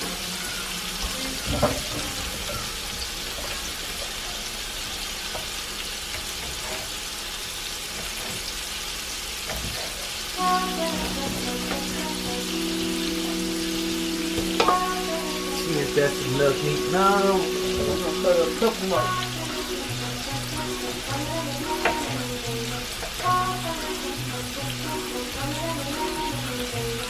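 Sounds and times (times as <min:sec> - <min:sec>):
onions sizzling in hot oil: 0:00.0 - 0:27.0
music with held notes: 0:10.4 - 0:27.0.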